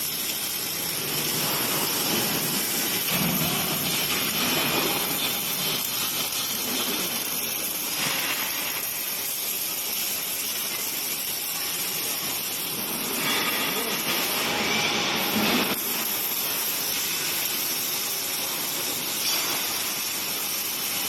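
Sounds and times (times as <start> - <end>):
welding machine hissing: 0.0 - 21.0.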